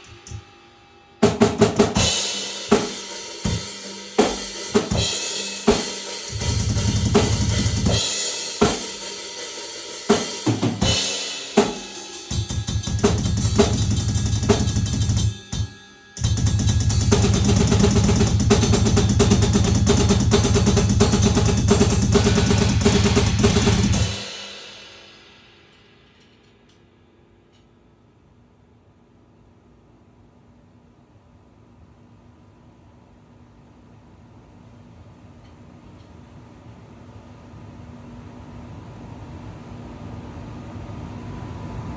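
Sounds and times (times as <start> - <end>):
fast drum roll with bass drum: 1.2 - 25.6
drum kit playing: 1.2 - 26.3
cymbals ringing: 1.2 - 26.6.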